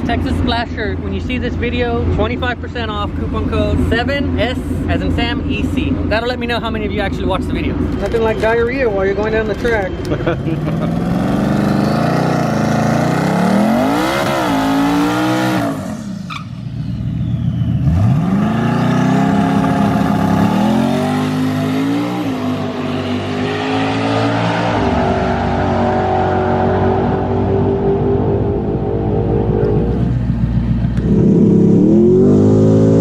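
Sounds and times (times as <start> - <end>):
drag car engine revving: 10.3 - 16.6, 17.2 - 33.0.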